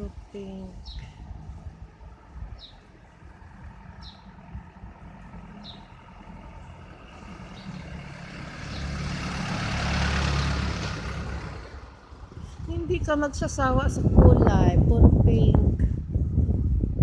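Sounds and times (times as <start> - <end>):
vehicle driving past: 1.0 - 12.9.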